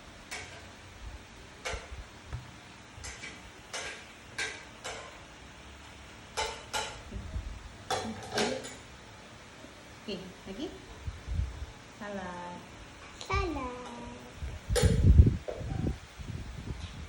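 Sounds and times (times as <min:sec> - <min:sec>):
kitchenware clicking and tapping: 0:01.6 - 0:01.9, 0:03.0 - 0:05.2, 0:06.3 - 0:07.0, 0:07.9 - 0:08.9.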